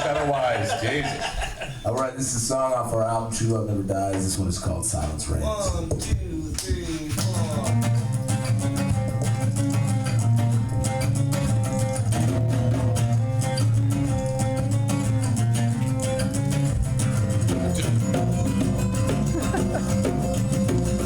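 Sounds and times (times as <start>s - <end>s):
rock band playing live: 7.4s - 21.0s.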